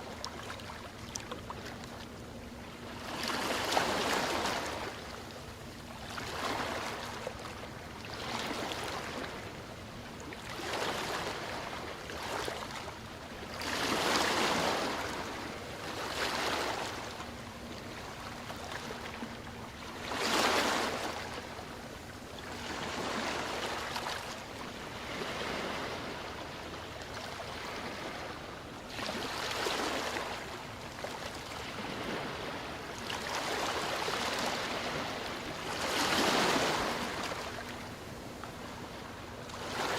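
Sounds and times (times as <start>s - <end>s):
large waves breaking: 25.0s - 26.3s, 31.6s - 37.9s, 39.6s - 39.9s.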